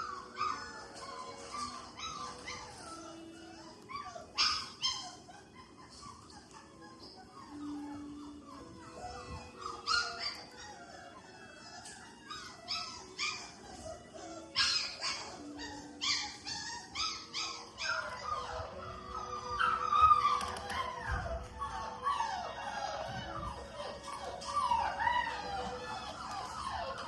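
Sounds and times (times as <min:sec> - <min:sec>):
puppies whining and yipping: 0:00.0 - 0:27.0
scuffing clicks of playing puppies: 0:20.0 - 0:21.7.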